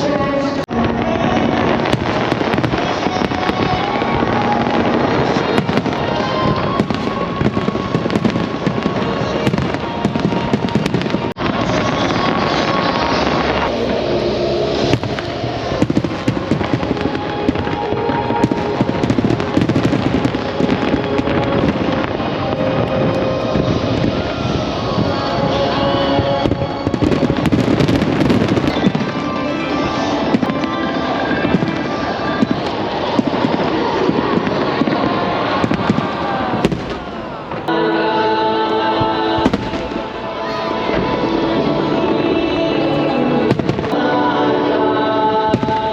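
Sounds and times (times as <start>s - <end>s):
fireworks bursting and crackling: 0.0s - 45.9s
music with held chord: 37.7s - 45.9s.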